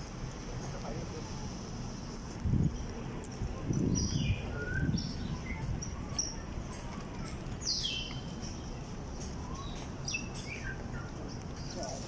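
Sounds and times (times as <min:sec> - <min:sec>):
low outdoor rumble: 0:00.0 - 0:12.0
birds chirping: 0:03.6 - 0:12.0.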